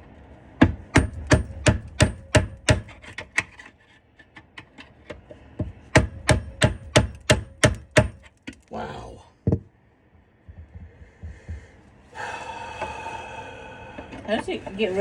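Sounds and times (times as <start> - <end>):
hammer striking metal: 0.6 - 3.0, 5.9 - 8.3.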